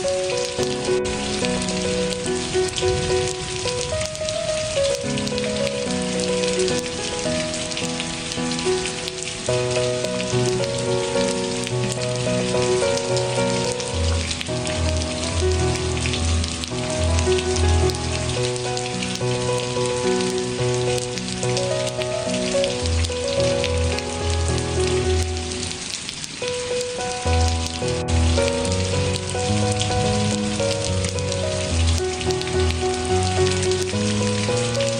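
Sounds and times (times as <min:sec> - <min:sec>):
steady rain falling: 0:00.0 - 0:34.9
instrumental music with bass: 0:09.6 - 0:25.7, 0:27.2 - 0:34.9.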